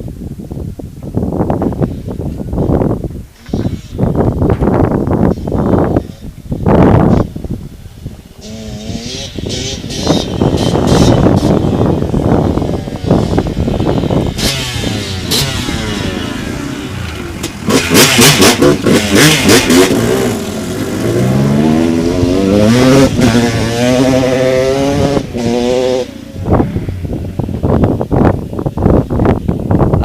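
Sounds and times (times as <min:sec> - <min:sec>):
dirt bike engine revving: 0:08.3 - 0:29.0.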